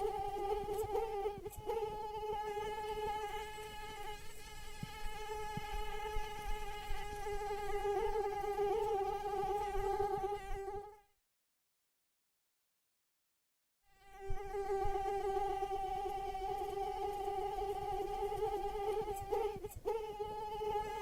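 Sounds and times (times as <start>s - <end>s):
mosquito whine: 0.0s - 11.0s, 13.8s - 21.0s.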